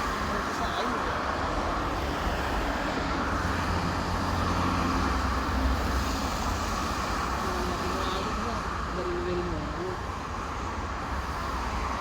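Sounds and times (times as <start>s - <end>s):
highway traffic rumble: 0.0s - 12.0s.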